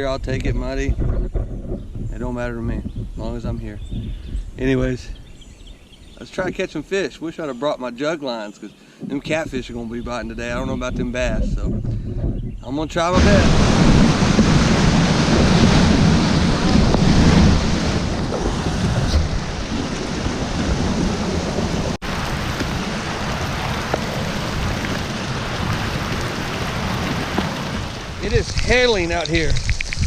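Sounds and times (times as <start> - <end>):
wind buffeting microphone: 0.0 - 6.8, 9.0 - 30.0
falling rain and hail: 13.2 - 30.0.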